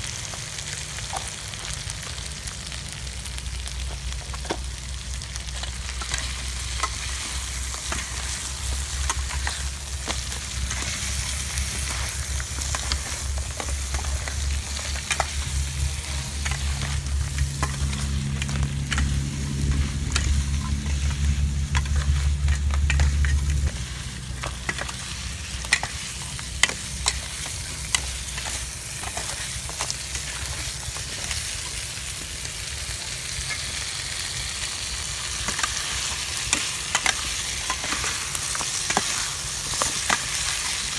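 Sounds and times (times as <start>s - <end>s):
crab frying in a pan: 0.0s - 40.9s
low rumble: 2.3s - 29.0s
metal ladle scraping a pan: 5.5s - 31.5s.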